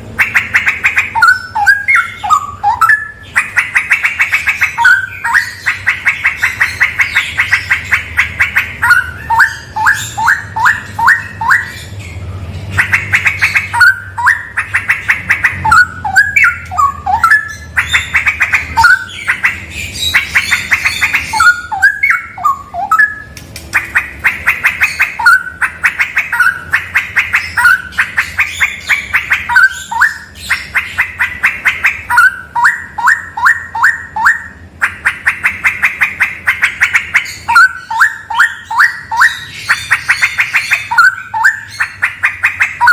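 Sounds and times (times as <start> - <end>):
bird singing whistled phrases: 0.2 - 8.0, 8.8 - 12.2, 15.4 - 23.3, 27.3 - 31.3, 31.9 - 34.6, 36.9 - 42.9.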